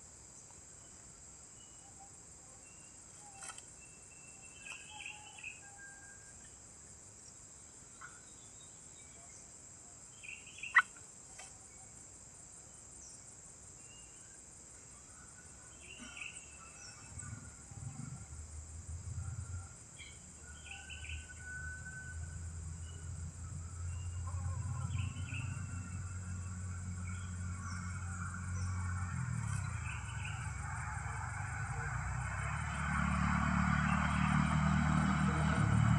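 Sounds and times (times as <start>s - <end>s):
high insect drone: 0.0s - 35.9s
bird chirps: 1.6s - 6.1s, 10.1s - 11.0s, 23.8s - 30.6s
low engine hum: 15.5s - 35.9s.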